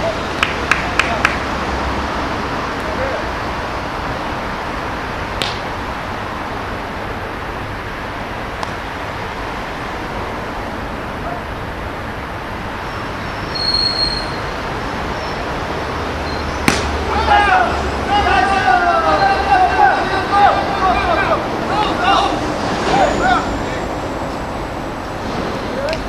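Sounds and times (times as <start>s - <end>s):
outdoor background noise: 0.0s - 26.0s
brief high squeal: 13.2s - 14.5s.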